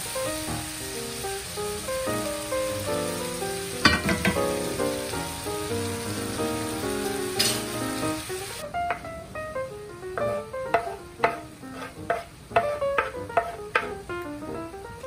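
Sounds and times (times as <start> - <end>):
meat sizzling in a skillet: 0.0 - 8.9, 10.2 - 15.0
wooden spoon scraping a pan: 10.7 - 14.0.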